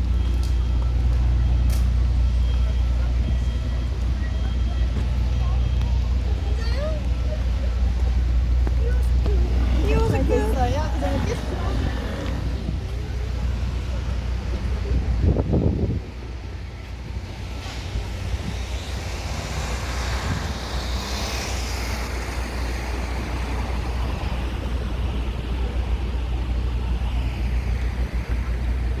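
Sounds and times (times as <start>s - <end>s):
road traffic rumble: 0.0s - 29.0s
wind buffeting microphone: 5.0s - 29.0s
vehicle passing: 8.2s - 13.9s, 17.3s - 25.7s.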